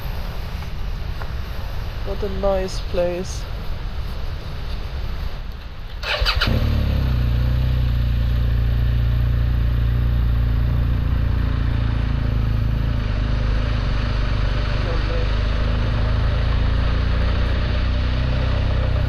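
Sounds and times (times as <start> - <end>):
motorcycle starter cranking: 6.0 - 7.0
motorcycle engine idling: 6.2 - 19.0.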